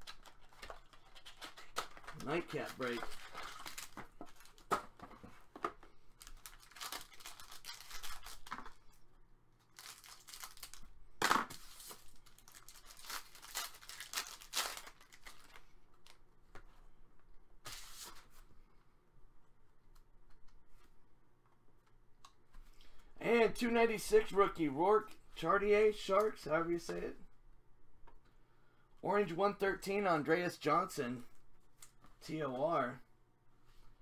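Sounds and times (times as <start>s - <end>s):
wrappers tearing and crinkling: 0.0s - 4.7s, 6.2s - 8.8s, 9.7s - 10.9s, 11.5s - 16.2s.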